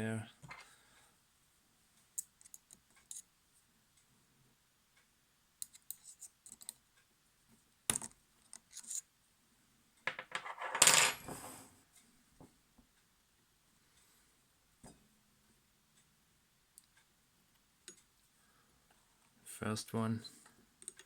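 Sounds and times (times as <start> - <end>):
small metal clicks and clinks: 2.2 - 3.3.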